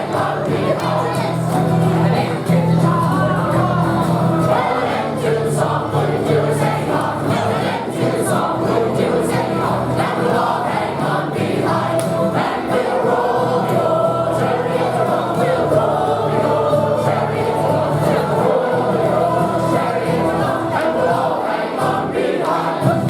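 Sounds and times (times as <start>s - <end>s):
group of voices singing: 0.0s - 23.0s.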